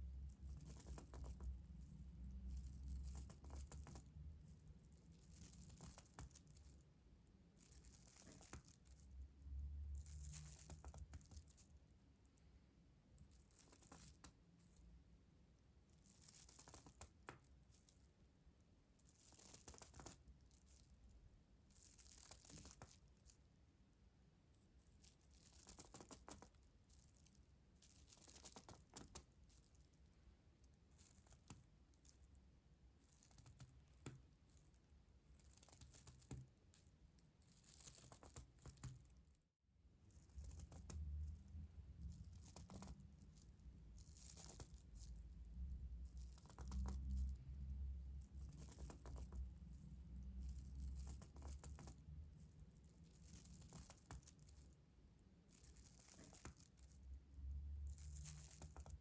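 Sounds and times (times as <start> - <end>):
soft crinkling and scratching: 0.0 - 59.0.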